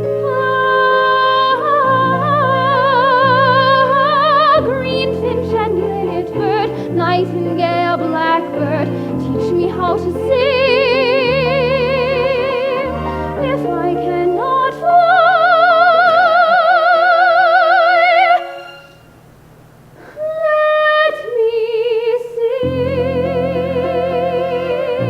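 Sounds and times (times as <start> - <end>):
soprano singing high notes: 12.1 - 19.2.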